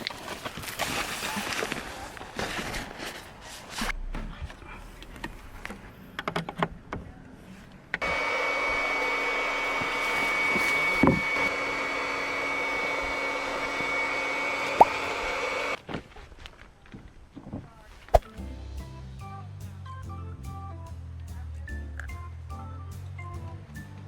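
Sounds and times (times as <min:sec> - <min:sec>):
small electric motor whining: 0:08.0 - 0:15.8.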